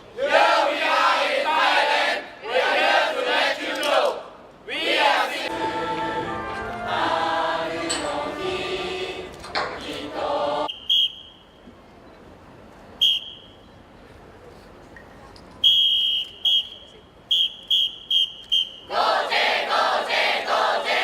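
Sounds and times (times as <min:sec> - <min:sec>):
group singing or chanting: 0:00.2 - 0:10.7, 0:18.9 - 0:21.0
whistle blasts: 0:10.7 - 0:11.7, 0:13.0 - 0:13.7, 0:15.6 - 0:18.9.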